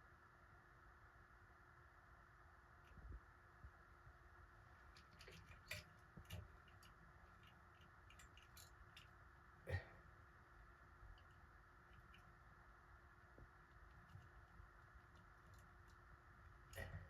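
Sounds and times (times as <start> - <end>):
small parts clicking and tapping: 4.8 - 9.3.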